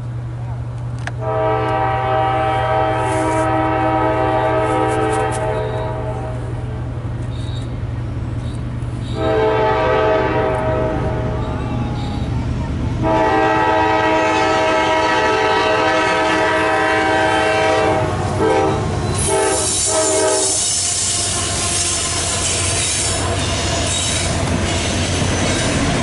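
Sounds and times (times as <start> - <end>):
train rolling rumble: 0.0 - 26.0
locomotive air horn blasts: 1.2 - 6.6, 9.0 - 12.2, 13.0 - 24.9
wheel-on-rail noise: 4.3 - 9.4, 17.6 - 26.0.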